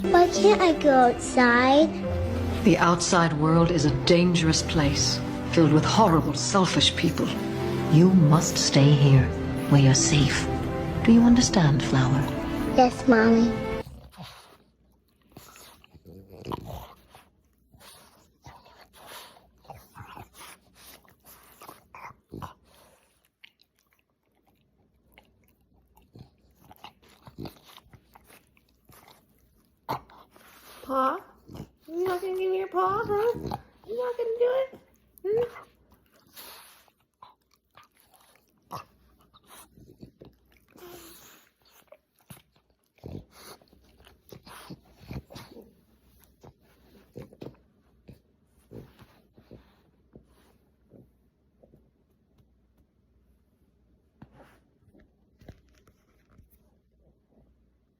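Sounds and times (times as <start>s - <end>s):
dog chewing: 13.6s - 49.8s.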